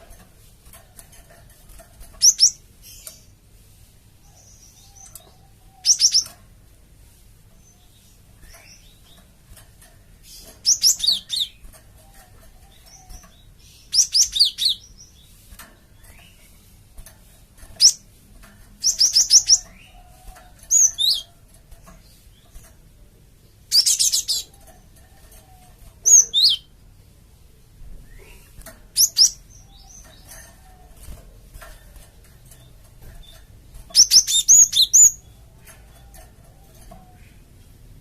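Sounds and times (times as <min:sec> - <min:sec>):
bird high sharp chirps: 0:02.2 - 0:03.3, 0:04.3 - 0:06.4, 0:10.3 - 0:11.6, 0:12.8 - 0:15.4, 0:18.8 - 0:20.1, 0:20.7 - 0:21.3, 0:23.7 - 0:24.6, 0:26.0 - 0:26.7, 0:28.0 - 0:30.4, 0:33.2 - 0:35.4.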